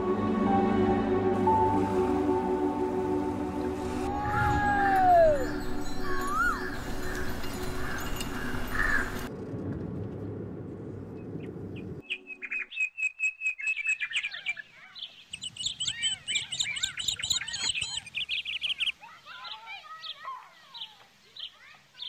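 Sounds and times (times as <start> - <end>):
birds chirping: 3.5 - 9.3, 11.7 - 22.0
low rumble: 8.2 - 12.0.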